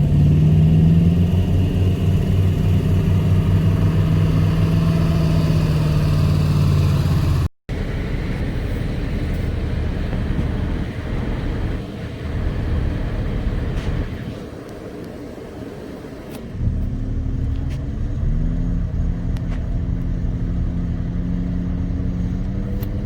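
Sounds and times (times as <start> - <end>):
off-road vehicle engine running: 0.0 - 14.9, 16.2 - 23.0.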